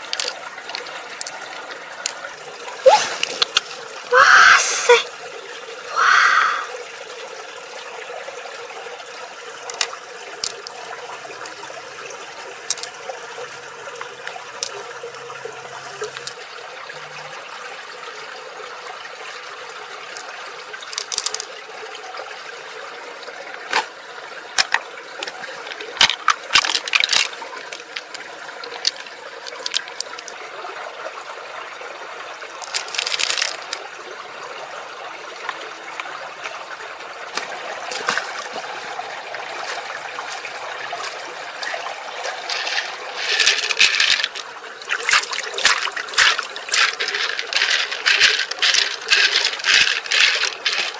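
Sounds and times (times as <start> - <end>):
water trickling and splashing: 0.0 - 50.9.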